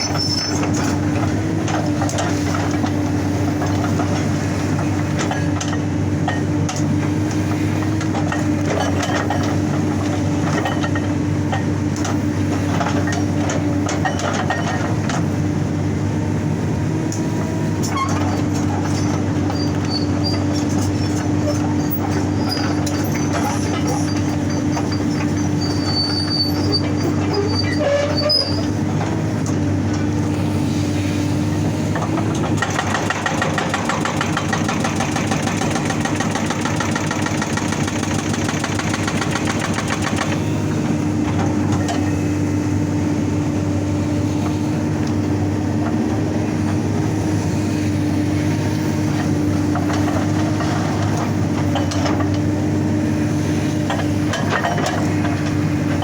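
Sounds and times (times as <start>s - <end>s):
diesel engine running: 0.0s - 56.0s
hydraulic breaker hammering rock: 32.1s - 40.5s.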